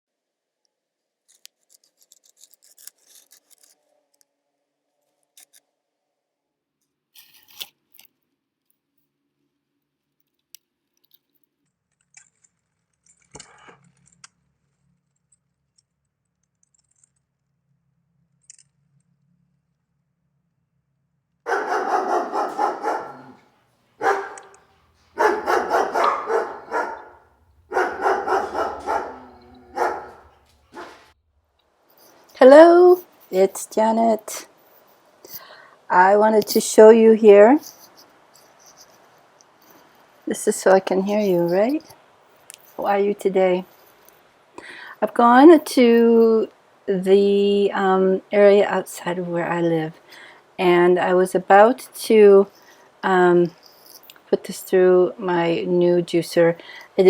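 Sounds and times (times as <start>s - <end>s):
faint clicks and rustles: 1.2s - 4.3s, 9.8s - 17.5s, 21.5s - 36.8s, 37.4s - 43.0s, 43.6s - 44.8s, 52.4s - 54.4s
dog barking: 21.5s - 23.4s, 24.0s - 24.6s, 25.2s - 31.1s.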